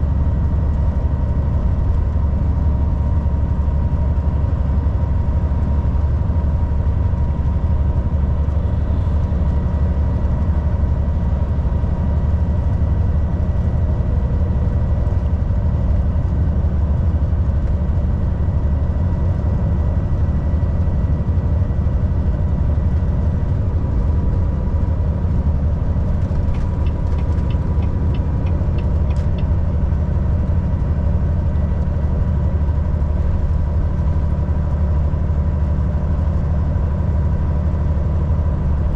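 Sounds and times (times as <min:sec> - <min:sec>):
road noise: 0:00.0 - 0:38.9
truck diesel engine droning: 0:00.0 - 0:38.9
light evenly spaced ticks: 0:26.5 - 0:29.6.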